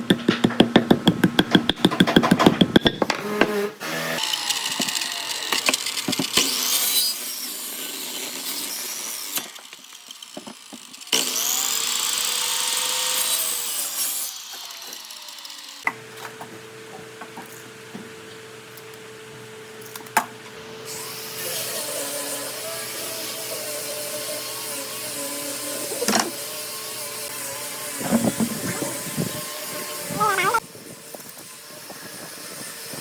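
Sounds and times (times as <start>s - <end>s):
rapid even tapping: 0.1s - 3.1s
power tools cutting wood: 2.1s - 15.9s, 20.6s - 33.0s.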